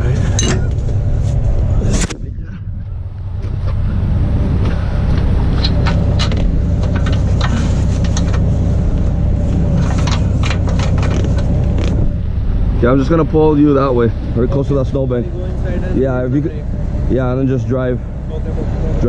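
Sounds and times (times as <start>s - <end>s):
diesel truck engine idling: 0.0s - 19.0s
sharp clicks and knocks: 4.6s - 8.5s, 9.8s - 12.0s.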